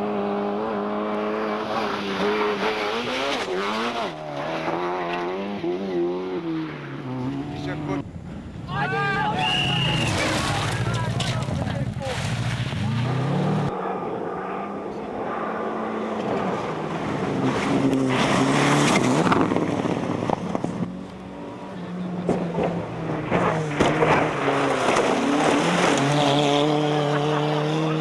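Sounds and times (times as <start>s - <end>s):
rally car engine revving: 0.0s - 8.1s, 9.7s - 28.0s.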